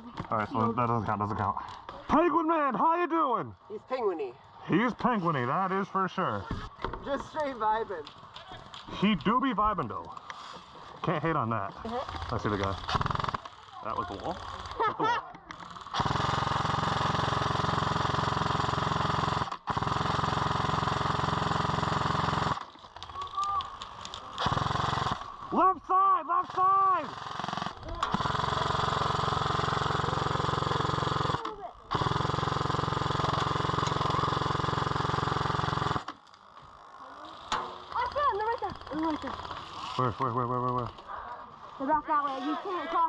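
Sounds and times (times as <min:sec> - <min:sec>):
airsoft machine gun firing: 0:11.8 - 0:36.2, 0:37.1 - 0:41.0.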